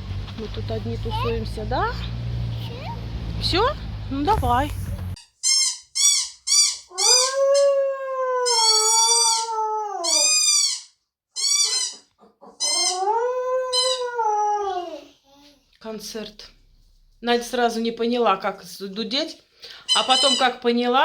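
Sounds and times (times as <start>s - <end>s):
toy horn honking: 19.9s - 20.5s.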